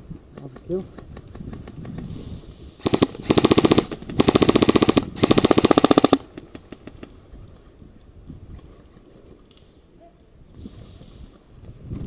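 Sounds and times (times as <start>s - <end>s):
airsoft rifle full auto bursts: 2.8s - 6.5s
faint scattered clicks: 9.4s - 10.3s.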